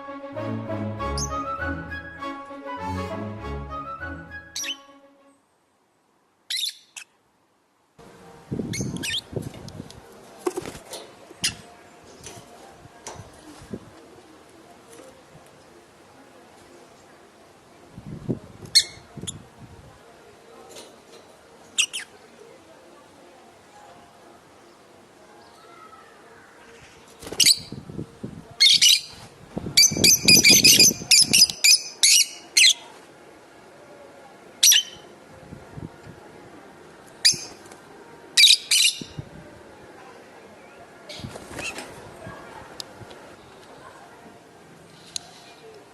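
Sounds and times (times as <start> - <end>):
lovebirds chirping: 4.4 - 5.0, 6.5 - 7.2, 8.7 - 9.4, 21.7 - 22.3, 29.8 - 32.9.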